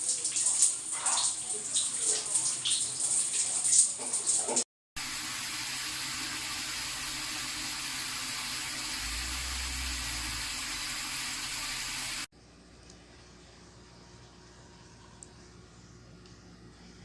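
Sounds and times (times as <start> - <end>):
shower spraying water: 0.0 - 12.3.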